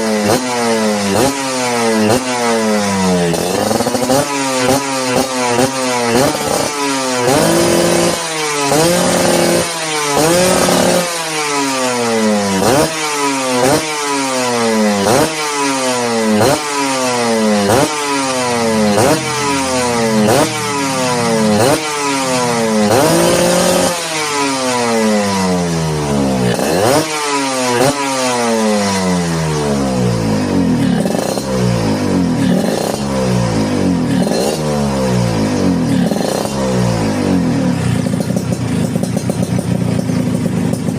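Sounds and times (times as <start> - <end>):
two-stroke motorcycle engine revving: 0.0 - 40.9.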